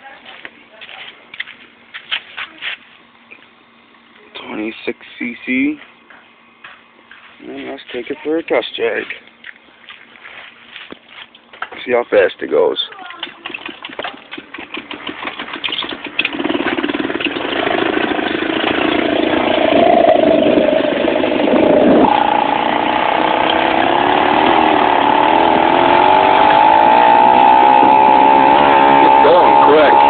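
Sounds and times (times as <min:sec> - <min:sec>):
small two-stroke engine buzzing: 0:13.1 - 0:30.0.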